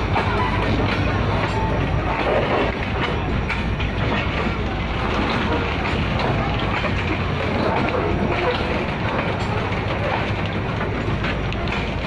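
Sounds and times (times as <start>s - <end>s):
steel wheels rumbling on rails: 0.0s - 12.0s
wheels clicking over rail joints: 0.0s - 12.0s.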